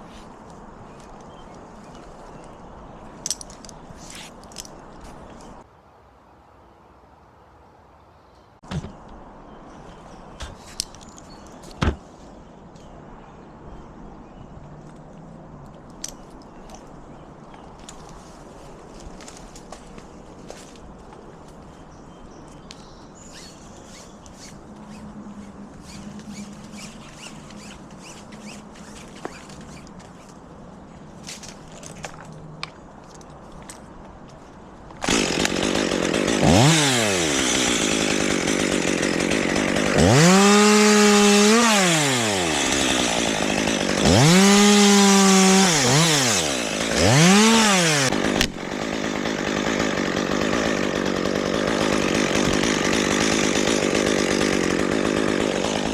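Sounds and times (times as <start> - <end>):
chainsaw starting and revving: 35.0 - 55.9.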